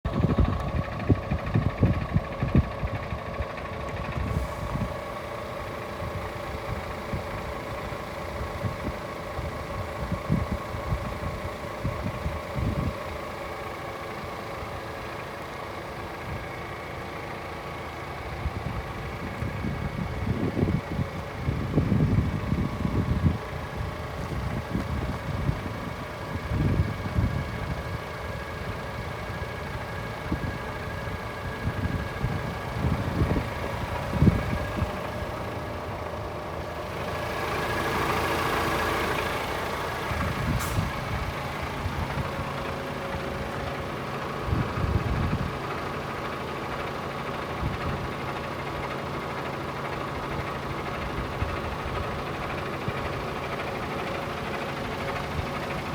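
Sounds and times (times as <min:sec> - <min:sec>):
diesel truck engine idling: 0:00.0 - 0:55.9
air hissing: 0:40.4 - 0:41.0.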